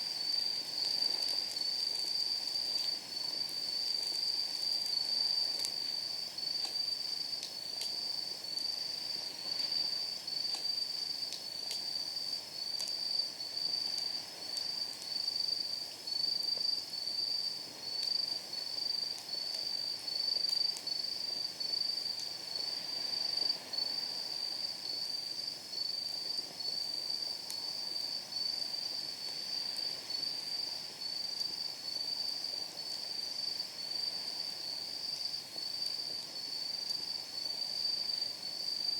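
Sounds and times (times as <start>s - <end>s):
firewood crackling and popping: 0.0s - 24.3s, 24.9s - 30.8s
wood fire hissing: 0.0s - 38.9s.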